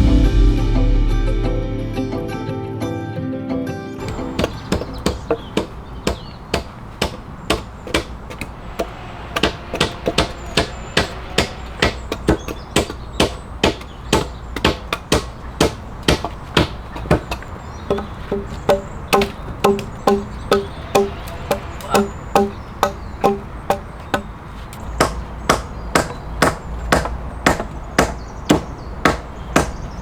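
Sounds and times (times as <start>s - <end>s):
hammer striking wood: 4.0s - 29.9s.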